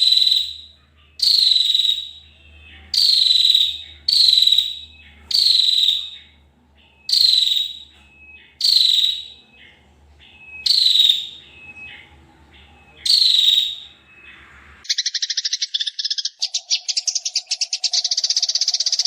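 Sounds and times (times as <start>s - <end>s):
fast buzzing bird trill: 0.0s - 6.3s, 7.1s - 7.8s, 8.6s - 9.4s, 10.6s - 11.4s.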